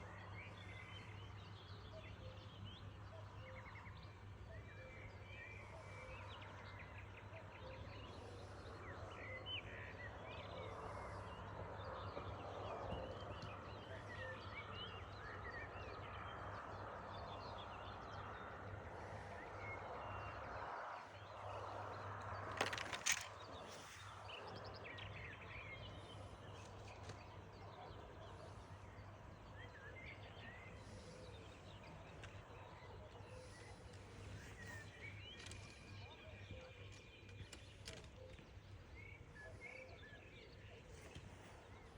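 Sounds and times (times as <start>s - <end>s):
birds chirping and singing: 21.1s - 41.9s.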